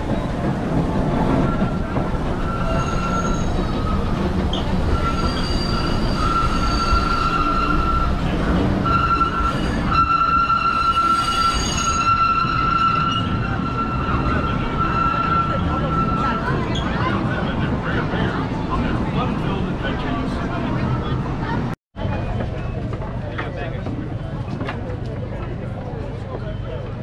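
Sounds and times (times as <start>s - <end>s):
train cars rumbling: 0.0s - 27.0s
high wheel squeal: 1.3s - 17.1s.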